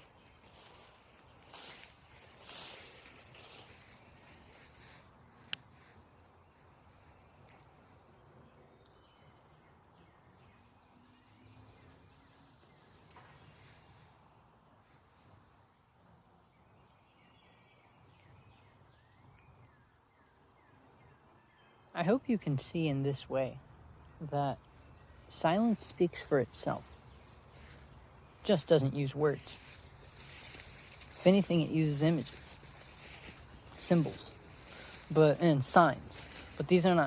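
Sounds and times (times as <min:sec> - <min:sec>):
faint rustling: 0:00.0 - 0:06.7, 0:26.8 - 0:37.0
insect trilling: 0:22.2 - 0:37.0.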